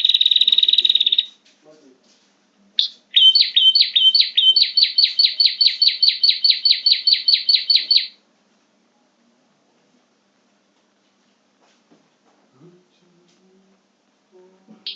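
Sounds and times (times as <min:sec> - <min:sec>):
bird chirping rapidly: 0:00.0 - 0:01.4, 0:02.8 - 0:08.2.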